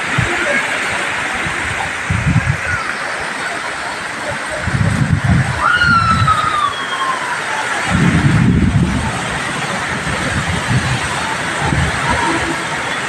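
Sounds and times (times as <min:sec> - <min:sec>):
wind buffeting microphone: 0:00.0 - 0:03.5, 0:04.2 - 0:06.9, 0:07.8 - 0:13.0
steady rain hiss: 0:00.0 - 0:13.0
downward sliding whistle tone: 0:05.6 - 0:07.6.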